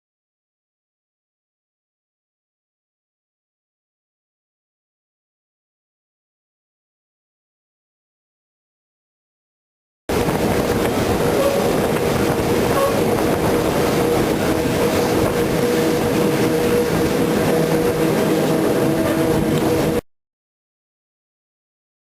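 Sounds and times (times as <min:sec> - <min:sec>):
electric train running on rails: 0:10.1 - 0:20.0.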